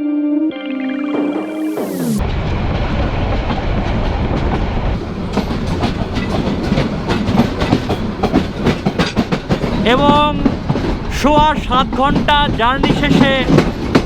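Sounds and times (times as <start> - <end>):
train wheels rumbling: 2.2 - 14.0
wheels clacking over rail joints: 4.4 - 14.0.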